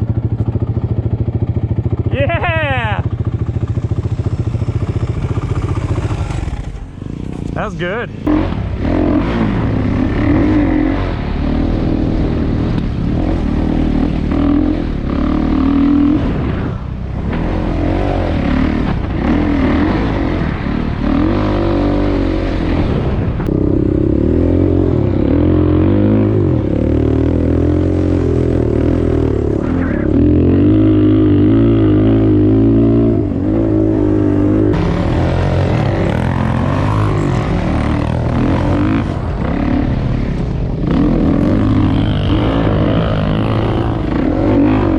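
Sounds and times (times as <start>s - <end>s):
dirt bike engine revving: 0.8s - 44.9s.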